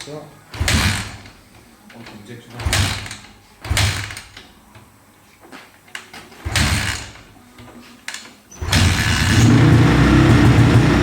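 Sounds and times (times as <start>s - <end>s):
motorcycle engine starting and running: 8.6s - 11.0s.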